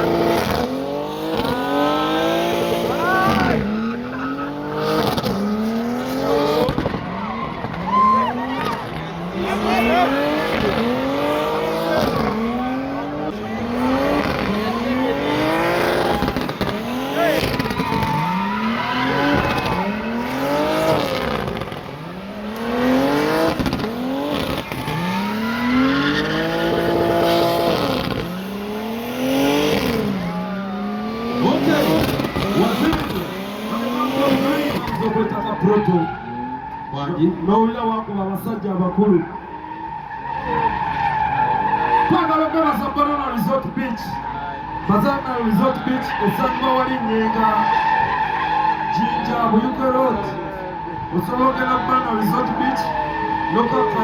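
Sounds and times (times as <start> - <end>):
car engine revving high: 0.0 - 36.4
tyres squealing: 7.2 - 37.0, 50.8 - 54.0.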